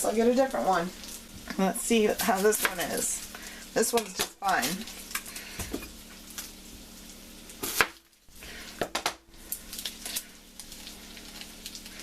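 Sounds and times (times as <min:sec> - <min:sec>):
knife chopping onion on board: 0:02.5 - 0:03.0.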